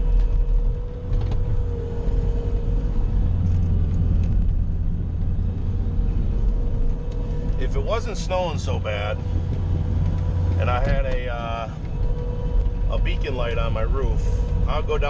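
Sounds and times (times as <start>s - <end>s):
diesel engine rumbling with whine: 0.0s - 15.0s.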